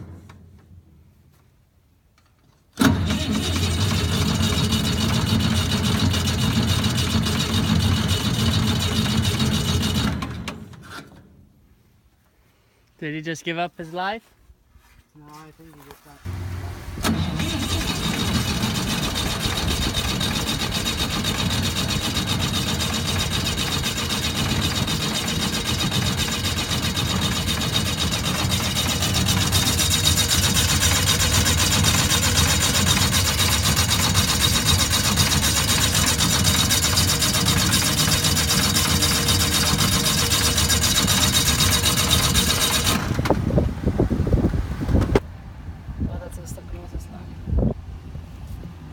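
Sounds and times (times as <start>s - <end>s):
engine rumbling with hiss: 15.9s - 48.9s.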